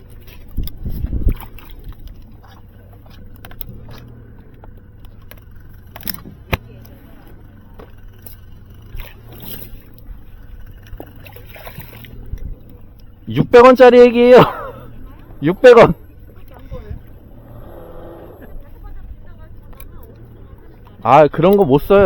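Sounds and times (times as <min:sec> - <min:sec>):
fishing gear knocking and scraping: 0:00.0 - 0:13.3
steady low hum: 0:00.0 - 0:22.0.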